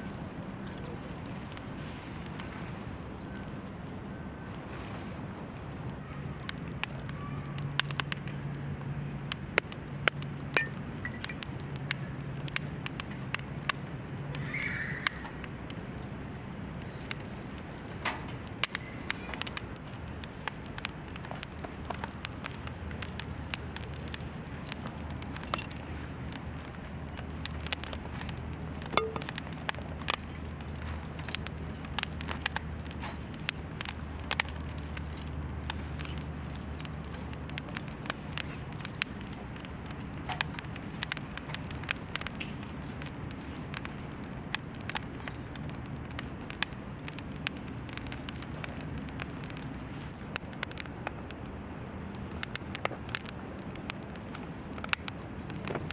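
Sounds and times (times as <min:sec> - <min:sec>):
campfire crackling and popping: 0:00.0 - 0:55.9
low steady rumble: 0:15.3 - 0:55.9.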